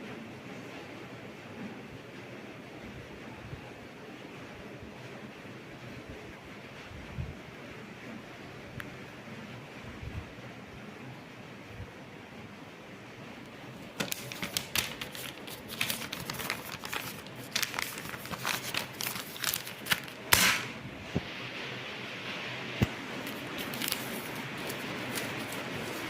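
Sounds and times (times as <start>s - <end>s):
ceiling fan air rush: 0.0s - 26.0s
irregular clicks and crackles: 13.4s - 20.7s, 22.8s - 26.0s.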